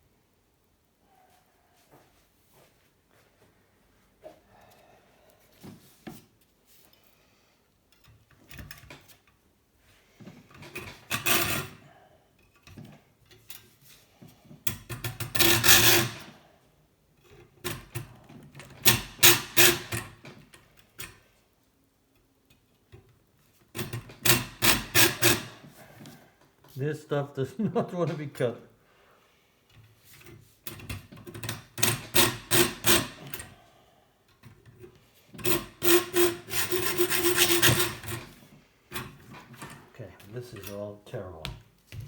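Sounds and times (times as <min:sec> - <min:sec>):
hand saw cutting metal tube: 0:35.4 - 0:38.3.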